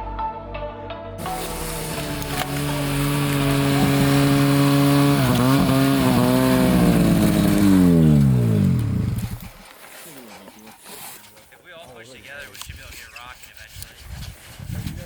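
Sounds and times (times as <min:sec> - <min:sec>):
snowmobile engine revving: 0:01.2 - 0:10.7.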